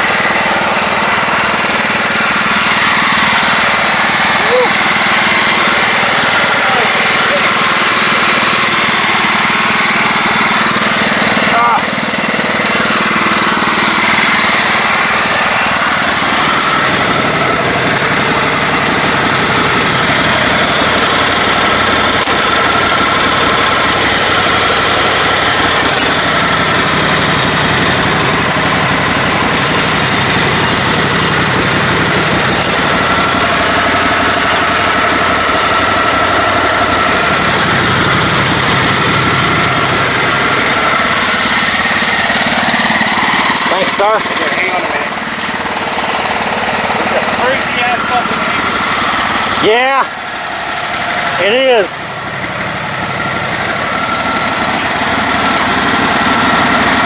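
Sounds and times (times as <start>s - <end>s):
riding lawn mower engine running: 0.0s - 57.0s.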